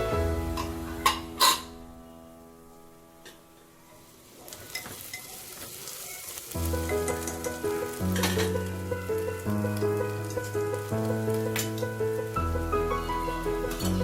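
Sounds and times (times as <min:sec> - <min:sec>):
background music: 0:00.0 - 0:03.4, 0:06.6 - 0:14.0
food sizzling in a pan: 0:00.0 - 0:14.0.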